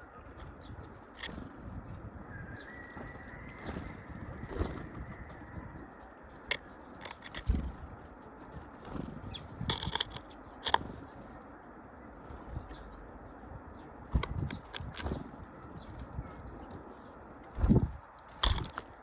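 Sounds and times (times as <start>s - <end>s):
faint bird chirps: 0.0s - 7.7s, 15.4s - 17.1s
bird wings fluttering: 0.3s - 5.8s, 6.5s - 11.2s, 14.1s - 16.2s, 16.8s - 19.0s.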